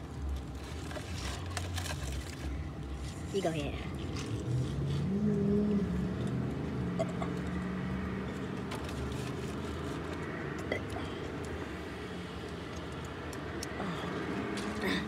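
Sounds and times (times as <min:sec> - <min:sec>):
wrapper rustling clicks: 0:00.4 - 0:03.2.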